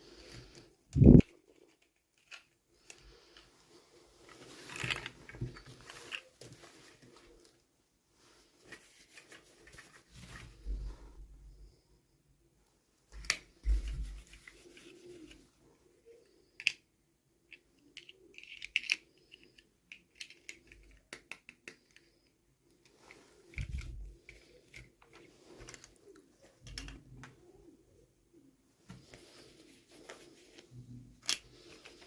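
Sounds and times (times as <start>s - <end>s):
plastic clicks: 16.5s - 16.8s, 17.5s - 27.4s.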